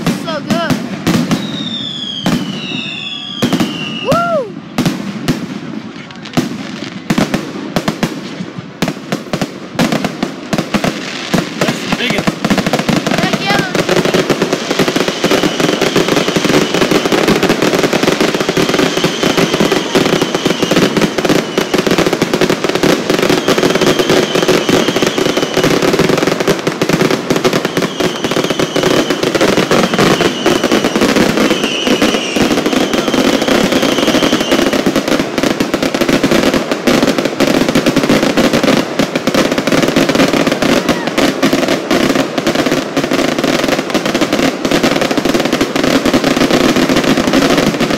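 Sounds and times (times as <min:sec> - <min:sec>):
high firework whistle: 0:00.0 - 0:04.8, 0:14.7 - 0:22.4, 0:23.1 - 0:26.2, 0:27.3 - 0:35.2
fireworks crackling and banging: 0:00.0 - 0:47.9.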